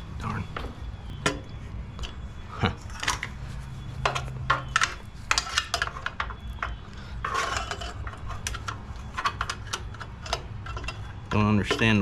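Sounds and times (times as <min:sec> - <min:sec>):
metal tools clinking on engine parts: 0:02.0 - 0:03.4, 0:04.0 - 0:12.0.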